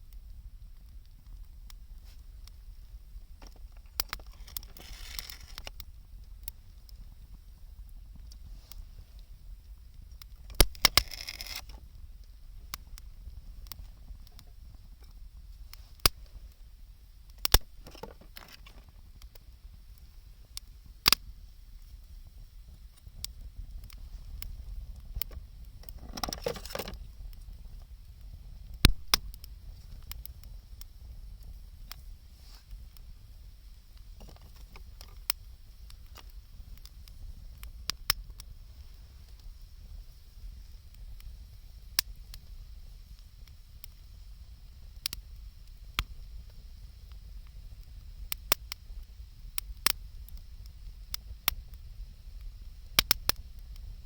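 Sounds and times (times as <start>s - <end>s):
bonfire crackling and popping: 0.0s - 54.0s
brief rustling: 25.9s - 27.0s.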